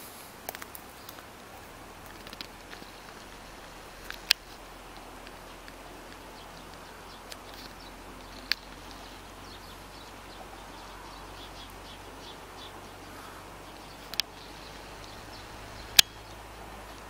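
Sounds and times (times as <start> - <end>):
outdoor hiss: 0.0 - 17.0
small birds chirping: 0.0 - 17.0
sharp clicks: 2.0 - 9.1.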